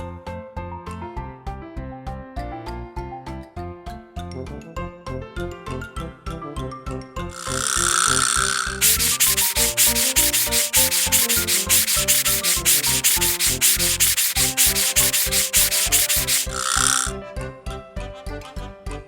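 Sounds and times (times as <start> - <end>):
bouncy background music: 6.0 - 19.0
cartoon scrubbing sound effect: 7.4 - 17.1
brief hiss: 7.6 - 17.1.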